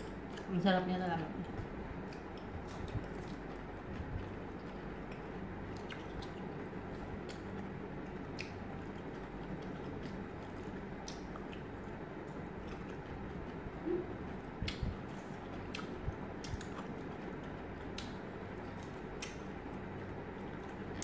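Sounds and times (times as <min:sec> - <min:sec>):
people chewing food: 0:01.3 - 0:21.0
crisp biting clicks: 0:15.7 - 0:16.9, 0:18.8 - 0:19.5.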